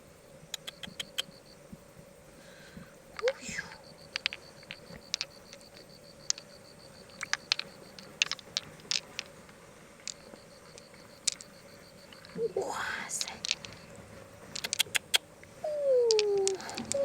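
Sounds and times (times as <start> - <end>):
faint high pulsing tone: 0.0 - 8.3, 10.1 - 14.4, 15.6 - 17.0
hard objects clicking together: 4.1 - 6.5, 7.1 - 9.4, 10.0 - 11.6, 13.2 - 13.9, 14.5 - 15.2, 16.0 - 17.0.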